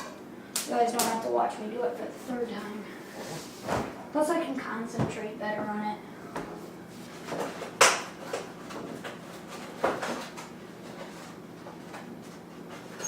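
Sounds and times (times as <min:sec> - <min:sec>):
kitchen knocks and clunks: 0:04.9 - 0:05.2.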